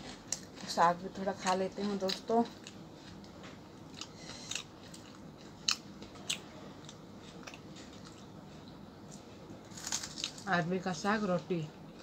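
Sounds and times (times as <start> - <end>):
person chewing food: 1.9 - 10.4.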